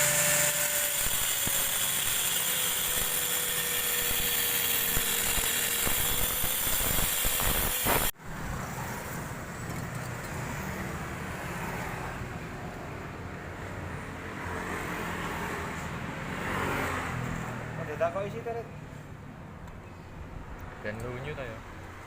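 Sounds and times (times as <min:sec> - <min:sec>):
power tool whining: 0:00.0 - 0:08.1.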